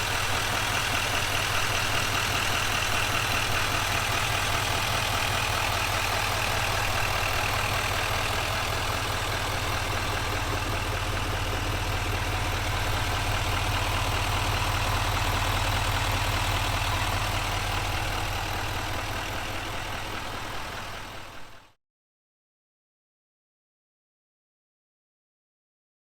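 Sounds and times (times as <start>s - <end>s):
diesel engine idling: 0.0s - 21.8s.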